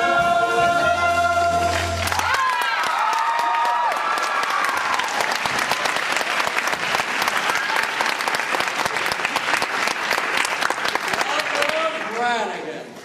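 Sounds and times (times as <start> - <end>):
singers holding a note: 0.0 - 2.6
audience applauding and cheering: 1.5 - 12.5.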